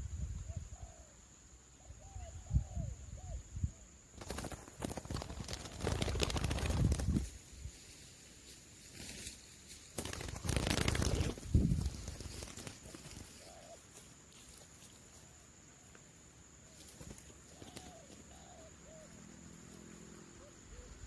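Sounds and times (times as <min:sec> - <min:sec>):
doves cooing: 0:10.0 - 0:14.1, 0:16.7 - 0:21.0.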